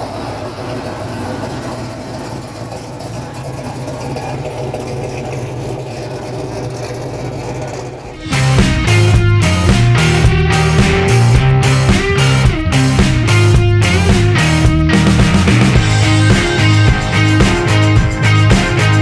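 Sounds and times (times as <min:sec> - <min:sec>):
car engine idling: 0:00.0 - 0:19.0
loud rock music with guitar: 0:08.2 - 0:19.0.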